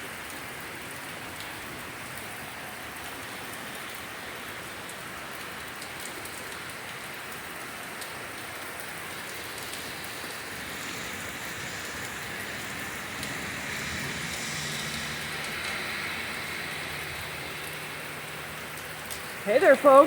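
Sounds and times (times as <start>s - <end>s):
heavy rain hissing: 9.0s - 20.0s.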